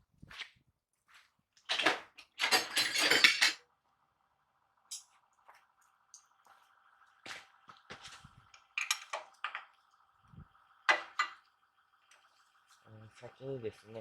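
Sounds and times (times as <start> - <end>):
metal tools clanking: 1.7 - 3.6, 8.8 - 9.7.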